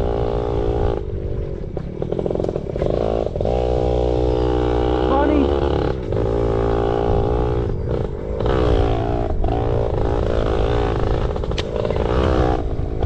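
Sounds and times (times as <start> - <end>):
motorbike engine revving: 0.0 - 13.0.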